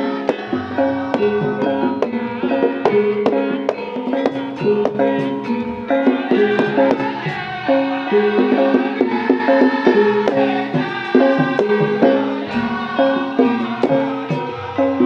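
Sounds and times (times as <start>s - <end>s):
bronze metallophone notes: 0.0s - 15.0s
sharp drum strokes: 0.0s - 15.0s.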